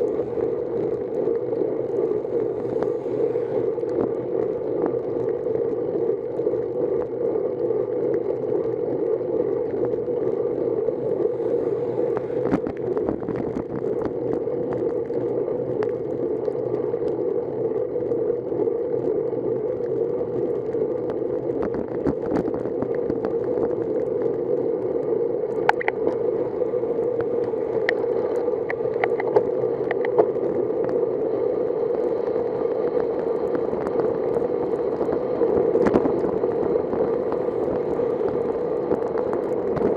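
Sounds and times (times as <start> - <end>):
bicycle tyre hiss on wet road: 2.1 - 4.3, 10.9 - 12.8, 30.8 - 39.9.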